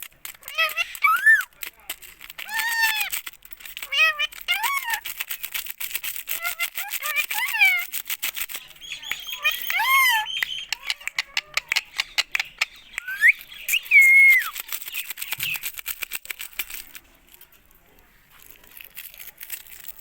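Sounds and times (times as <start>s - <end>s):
parrot whistling: 1.0s - 1.5s, 13.0s - 14.6s.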